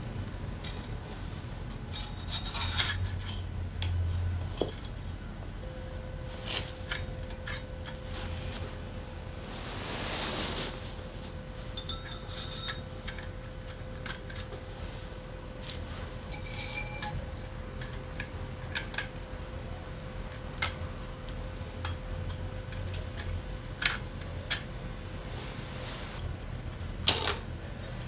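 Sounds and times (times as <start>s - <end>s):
faint steady hum: 0.0s - 28.0s
metal tools clicking and tapping: 6.9s - 8.0s, 11.8s - 14.6s, 16.3s - 19.2s.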